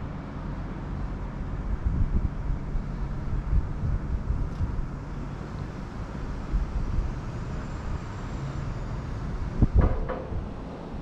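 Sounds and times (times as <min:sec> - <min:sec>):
train rumbling: 0:00.0 - 0:11.0
sharp knocks: 0:09.8 - 0:10.5.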